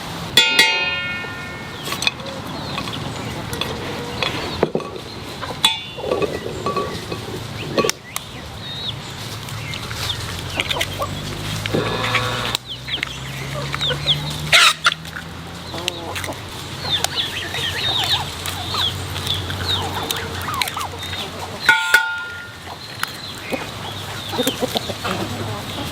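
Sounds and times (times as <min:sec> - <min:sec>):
chickens clucking: 0:00.4 - 0:25.9.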